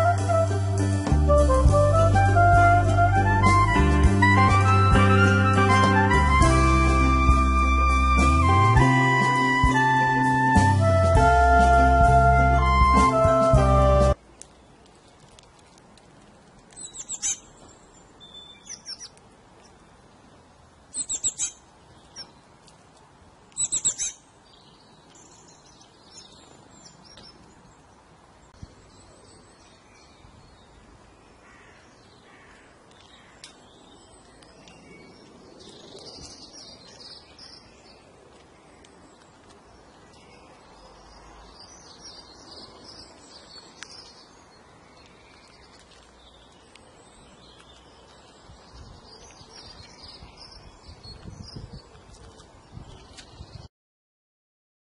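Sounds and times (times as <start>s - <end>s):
birds chirping: 16.7s - 22.7s, 23.4s - 53.7s.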